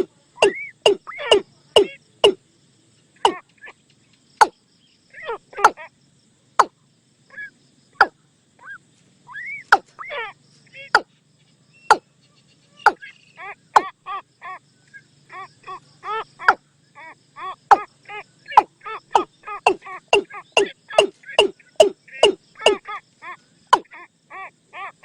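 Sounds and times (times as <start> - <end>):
hollow bird call notes: 18.5 - 22.8.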